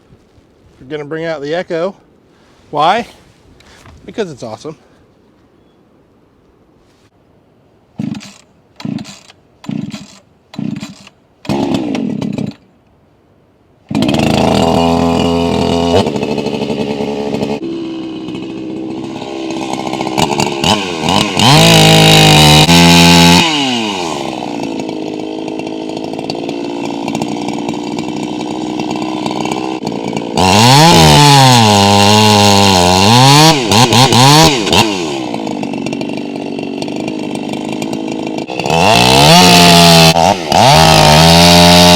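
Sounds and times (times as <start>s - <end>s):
chainsaw pull-starting and revving: 8.0s - 12.7s, 13.9s - 41.9s.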